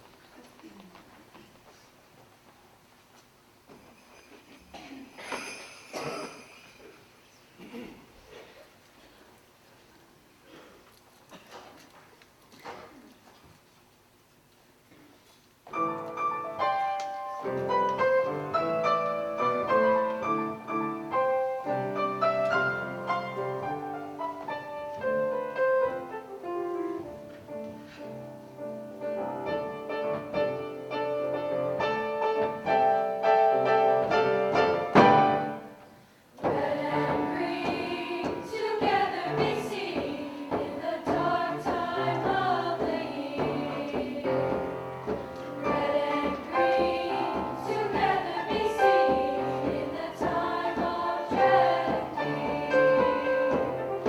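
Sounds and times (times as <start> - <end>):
women's choir singing: 36.4 - 54.0.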